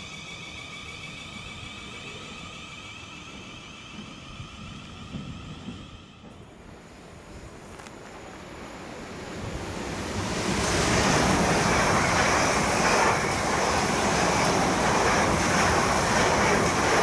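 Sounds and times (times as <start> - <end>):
train wheels roaring on rails: 0.0 - 17.0.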